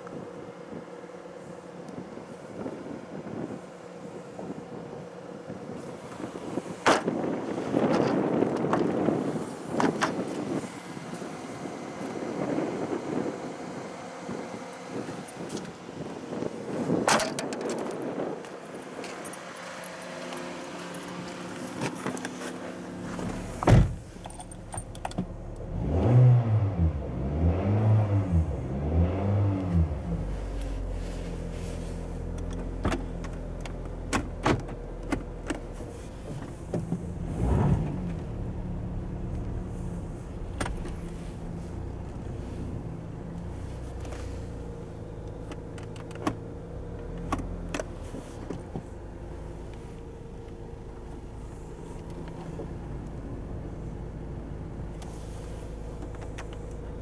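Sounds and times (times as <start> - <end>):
car engine running: 18.1 - 57.0.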